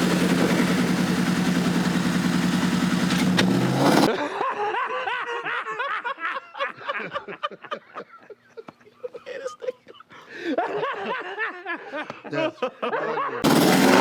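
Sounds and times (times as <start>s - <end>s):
car engine idling: 0.0s - 4.1s, 13.4s - 14.0s.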